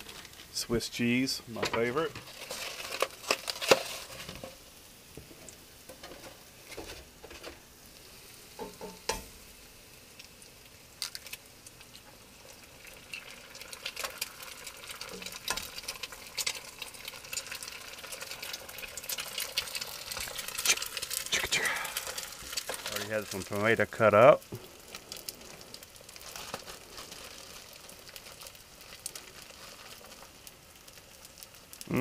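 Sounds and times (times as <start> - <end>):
vegetables sizzling in oil: 0.0 - 32.0
eggs cracking: 11.0 - 12.0, 12.6 - 23.6.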